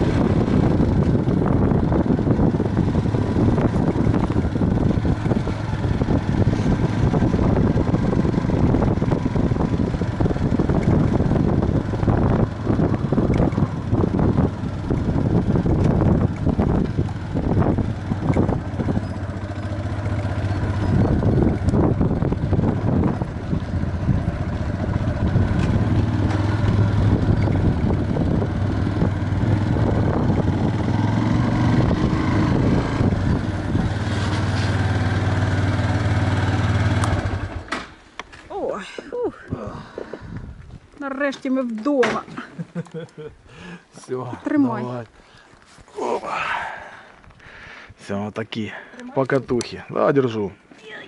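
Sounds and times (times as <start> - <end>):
wind buffeting microphone: 0.0 - 37.6, 39.2 - 41.0
motorcycle engine running: 0.0 - 37.8.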